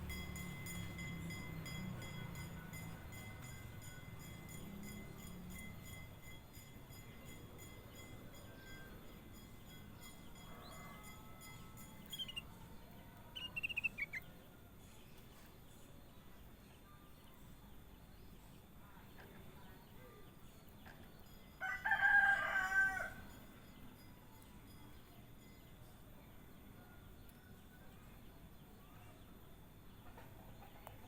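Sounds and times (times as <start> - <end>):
falling bird chirps: 13.4 - 14.2
rooster crowing: 21.6 - 23.4.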